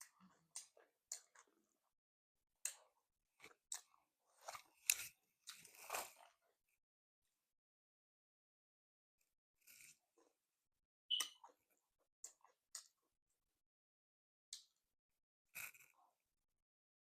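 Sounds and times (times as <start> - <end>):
person chewing crunchy food: 3.4 - 6.4.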